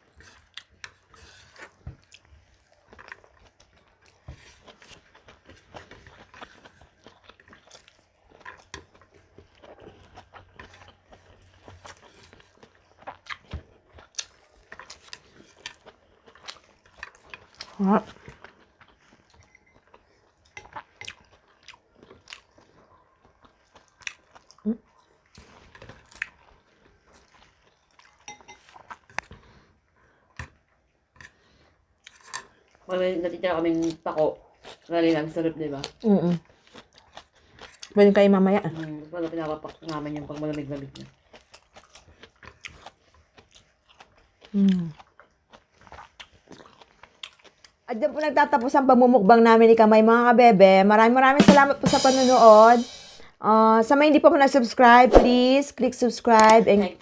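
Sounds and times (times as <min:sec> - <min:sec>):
person chewing crunchy food: 0:00.0 - 0:32.9, 0:33.7 - 0:35.0, 0:35.8 - 0:38.0, 0:38.6 - 0:47.9
crunchy chewing and biting: 0:38.7 - 0:47.8.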